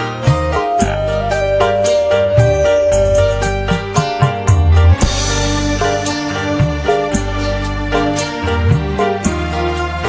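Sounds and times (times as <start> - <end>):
deep bass notes: 0.0 - 10.0
sustained higher tones: 1.5 - 6.0.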